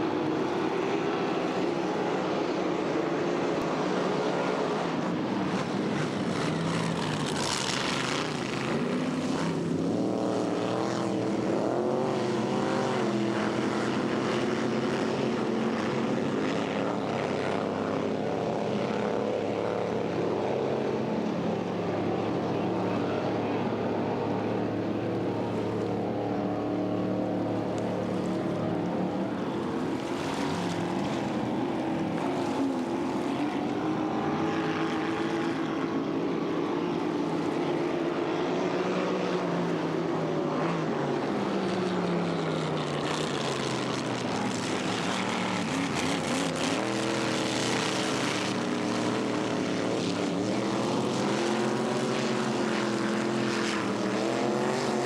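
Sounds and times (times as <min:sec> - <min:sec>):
racing boat engines: 0:00.0 - 0:55.0.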